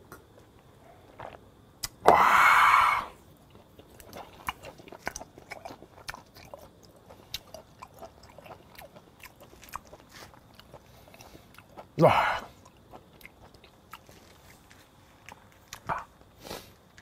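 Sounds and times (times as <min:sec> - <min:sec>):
wet chewing clicks and smacks: 0:03.4 - 0:12.0, 0:12.6 - 0:16.3.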